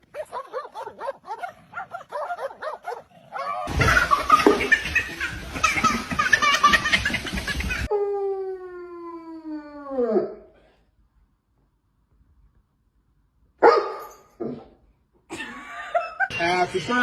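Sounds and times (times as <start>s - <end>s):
dog barking: 0.1s - 3.6s, 13.6s - 14.7s.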